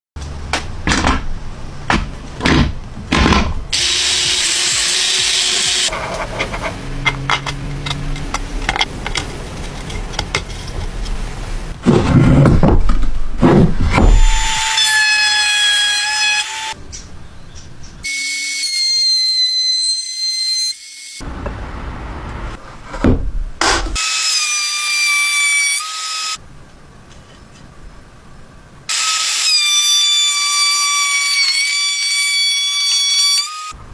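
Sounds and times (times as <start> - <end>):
drilling into wood: 3.8 - 5.9
motor whine: 3.8 - 5.9.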